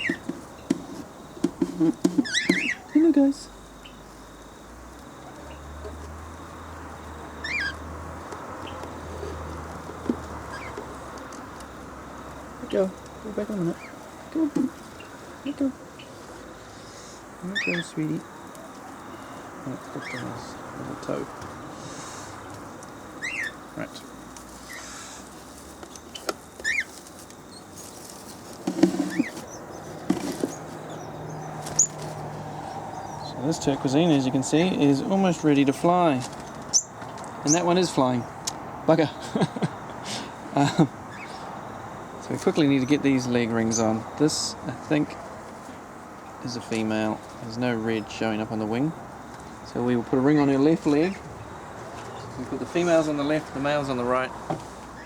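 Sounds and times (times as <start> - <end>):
high bird chirps: 0.0 - 1.4, 2.0 - 3.1, 3.7 - 4.6, 7.2 - 7.9, 8.6 - 9.2, 10.4 - 10.9, 16.9 - 20.6, 23.2 - 23.6, 26.0 - 27.8, 29.0 - 32.0, 32.6 - 33.5, 36.4 - 38.4
bird chirp: 0.0 - 25.2, 25.9 - 38.5, 39.1 - 41.6, 42.2 - 44.7
rustling and clicks of handling: 25.3 - 30.8.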